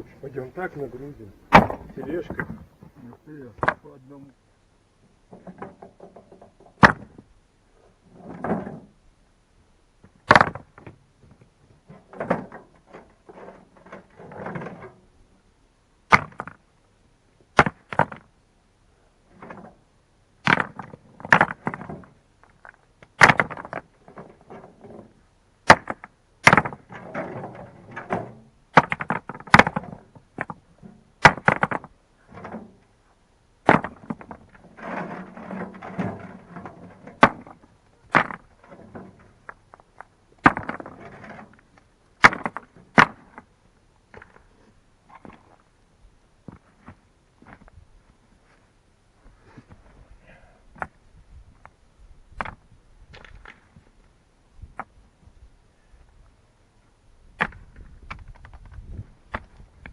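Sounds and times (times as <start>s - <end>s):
scraping and shuffling: 0.0s - 4.3s, 33.9s - 43.5s, 46.4s - 51.8s
stones knocking together: 1.5s - 3.8s, 10.0s - 11.0s, 20.4s - 25.1s, 25.7s - 30.6s, 31.2s - 32.6s, 33.6s - 41.6s, 42.2s - 43.5s, 52.4s - 53.9s, 57.4s - 59.9s.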